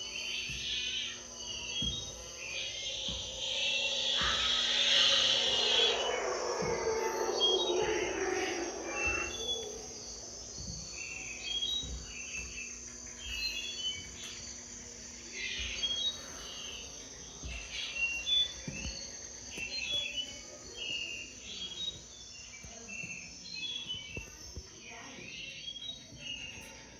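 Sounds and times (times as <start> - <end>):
birds chirping: 0.0 - 12.4
high-pitched insect trill: 0.0 - 26.0.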